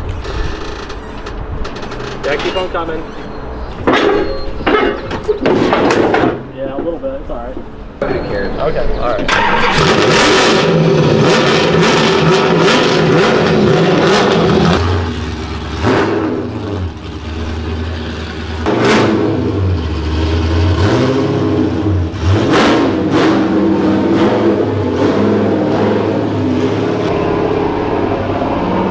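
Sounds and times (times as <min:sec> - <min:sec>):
car engine revving: 0:08.0 - 0:28.9.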